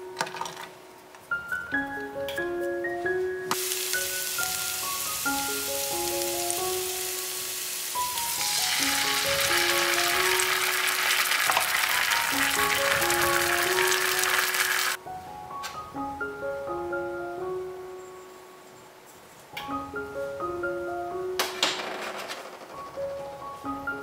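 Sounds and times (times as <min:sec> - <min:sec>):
mallet and piano background music: 0:00.0 - 0:18.8, 0:19.6 - 0:21.9, 0:22.7 - 0:24.0
onions sizzling in oil: 0:03.5 - 0:15.0
sauce poured into hot pan: 0:07.5 - 0:15.0.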